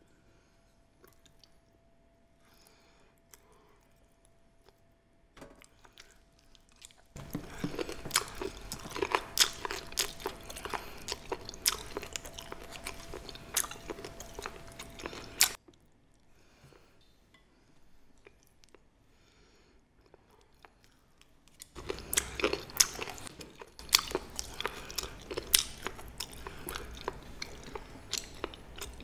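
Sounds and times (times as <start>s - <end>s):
crunchy chewing: 5.7s - 16.2s, 20.0s - 29.0s.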